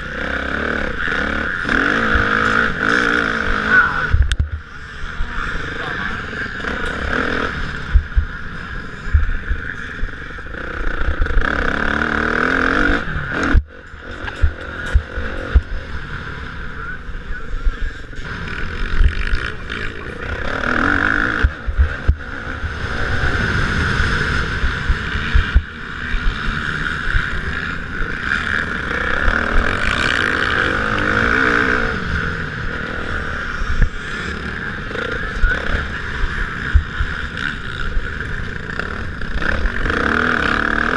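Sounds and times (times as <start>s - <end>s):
motocross bikes revving: 0.0s - 40.9s
low thumps: 7.9s - 8.4s, 24.6s - 25.7s.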